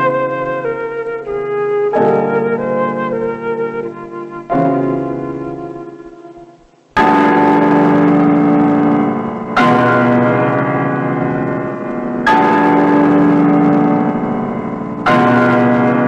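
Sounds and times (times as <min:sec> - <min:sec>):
large bell tolling: 0:07.0 - 0:16.0.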